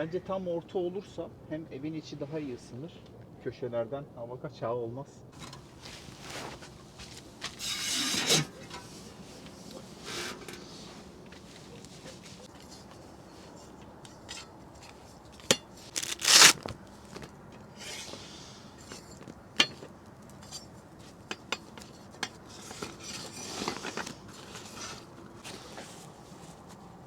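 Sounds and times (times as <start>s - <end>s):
rustling: 5.4s - 27.0s
hard objects clinking and knocking: 18.8s - 24.1s.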